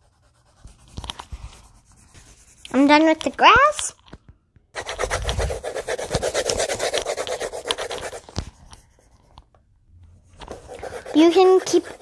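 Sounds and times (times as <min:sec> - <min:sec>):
colouring strokes on paper: 0:00.0 - 0:03.4, 0:04.8 - 0:09.4, 0:10.4 - 0:12.0.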